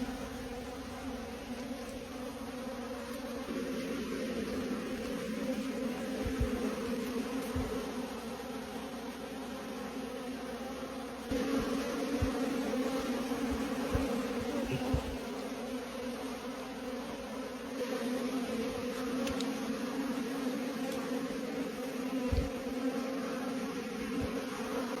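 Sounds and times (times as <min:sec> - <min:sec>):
bees buzzing: 0:00.0 - 0:25.0
low thumps: 0:06.2 - 0:06.7, 0:07.5 - 0:07.8, 0:11.3 - 0:12.7, 0:13.3 - 0:15.3.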